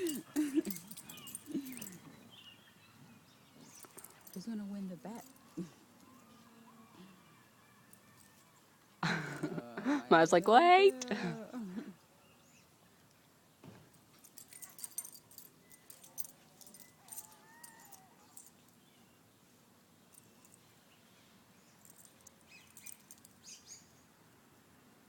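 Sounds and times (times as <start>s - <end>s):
dog tags jingling: 0.0s - 2.5s, 3.6s - 6.3s, 13.9s - 18.8s, 21.7s - 23.6s.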